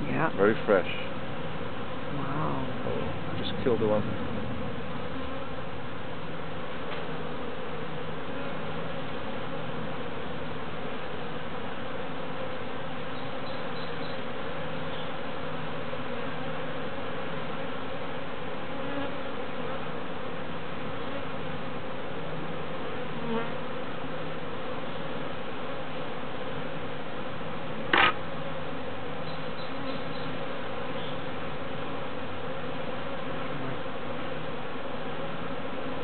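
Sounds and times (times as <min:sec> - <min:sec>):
bees buzzing: 0:00.0 - 0:36.0
sharp knock: 0:27.9 - 0:28.2.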